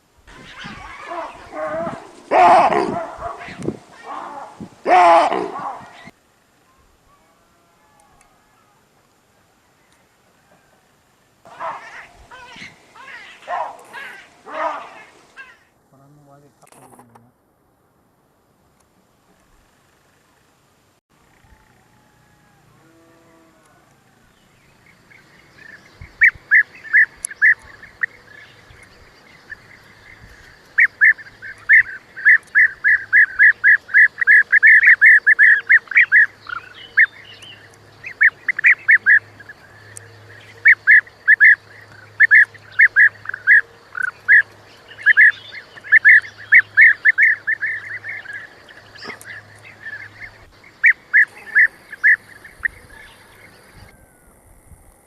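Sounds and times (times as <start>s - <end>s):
bird calling sharp repeated notes: 30.7s - 53.9s.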